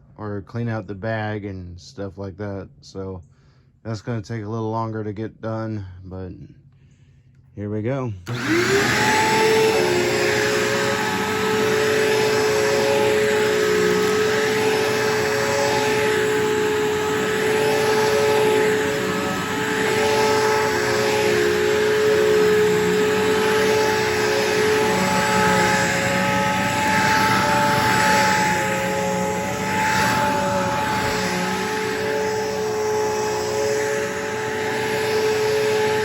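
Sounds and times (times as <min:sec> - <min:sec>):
vacuum cleaner running: 0:08.2 - 0:36.0.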